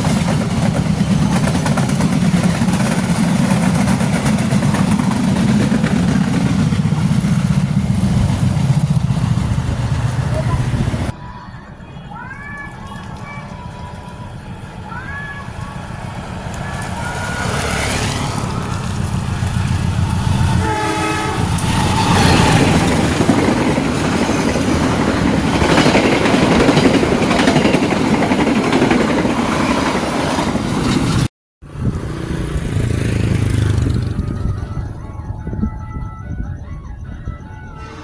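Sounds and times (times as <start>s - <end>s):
train wheels on rails: 0.0s - 11.2s, 12.4s - 35.0s
train horn: 20.4s - 23.4s, 37.7s - 38.0s.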